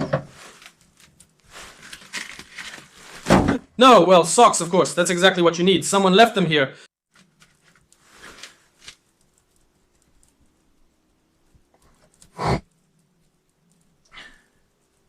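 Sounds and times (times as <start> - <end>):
faint rustling: 7.1 - 15.0.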